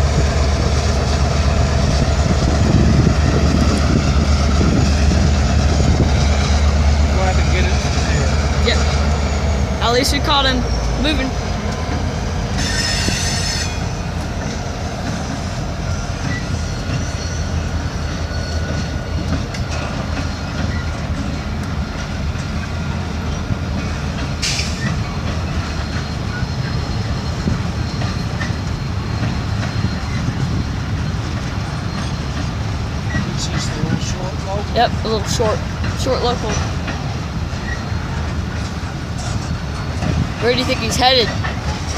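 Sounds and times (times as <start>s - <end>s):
train wheels rumbling on rail: 0.0s - 41.9s
high wheel screech: 12.5s - 14.6s, 15.4s - 21.0s.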